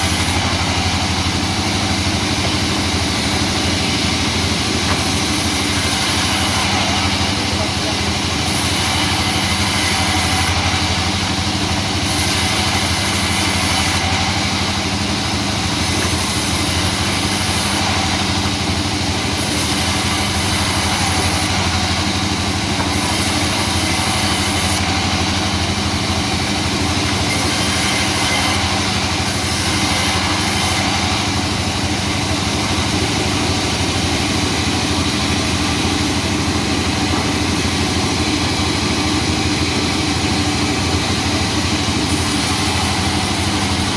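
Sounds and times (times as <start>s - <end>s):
engine hum: 0.0s - 8.3s
sawmill machinery running: 0.0s - 43.9s.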